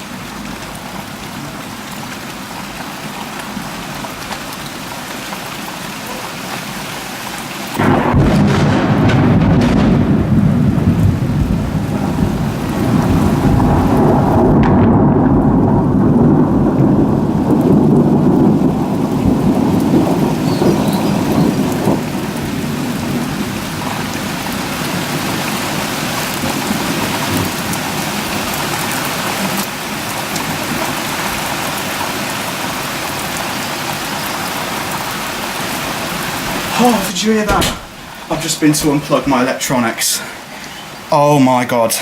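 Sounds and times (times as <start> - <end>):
thunder rumbling: 7.7 - 40.3
heavy rain hiss: 15.3 - 42.0.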